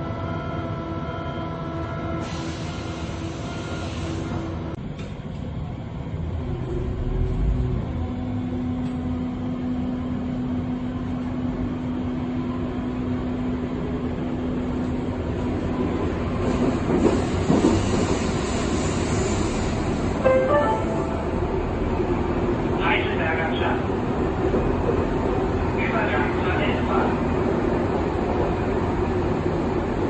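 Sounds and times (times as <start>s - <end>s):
train wheels rumbling on track: 2.2s - 20.2s, 21.6s - 30.0s
rising tones: 20.2s - 22.0s.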